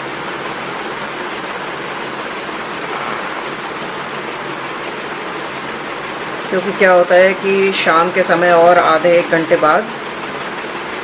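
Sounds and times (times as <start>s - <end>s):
rushing hiss of water: 0.0s - 6.5s.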